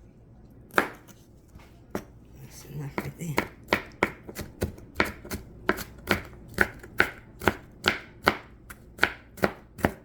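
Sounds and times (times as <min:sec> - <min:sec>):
knife chopping on cutting board: 0:00.7 - 0:01.2, 0:02.9 - 0:10.0.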